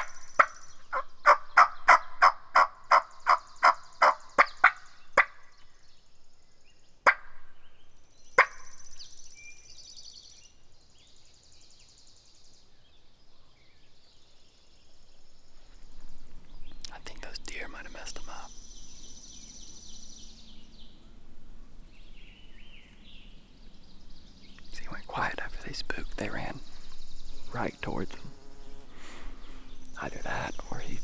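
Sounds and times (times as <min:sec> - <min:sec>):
wild turkey alarm putts: 0:00.0 - 0:05.6, 0:07.0 - 0:07.5, 0:08.4 - 0:08.9
songbirds singing faintly: 0:00.0 - 0:31.0.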